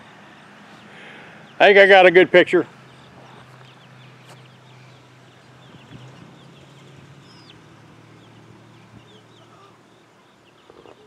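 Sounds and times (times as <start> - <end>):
young chickens peeping: 0.3 - 11.0.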